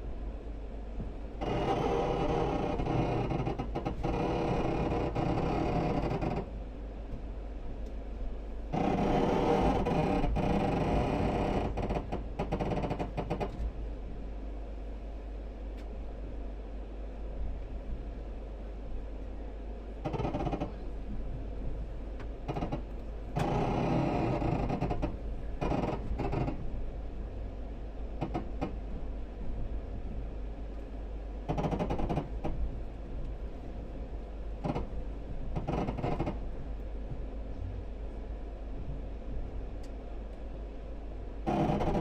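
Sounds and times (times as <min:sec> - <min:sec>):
train rumble: 0:00.0 - 0:42.0.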